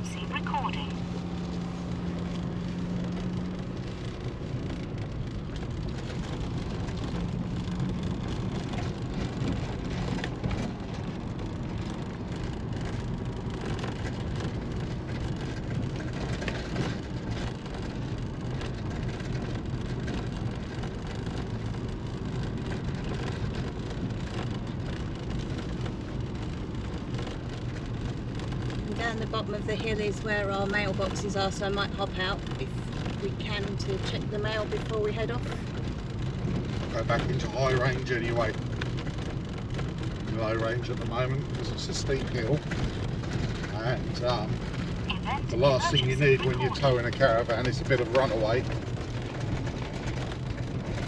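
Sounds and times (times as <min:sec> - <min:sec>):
tyre and drivetrain rumble: 0:00.0 - 0:51.0
knocks and rattles over bumps: 0:38.3 - 0:45.8.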